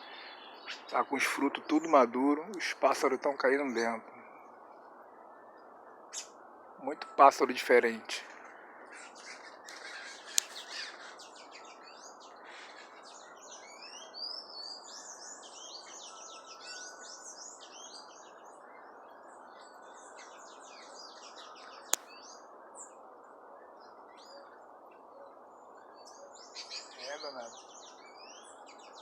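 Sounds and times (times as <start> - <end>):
background hiss: 0.0 - 29.0
birds chirping and whistling: 8.0 - 22.9, 23.7 - 29.0.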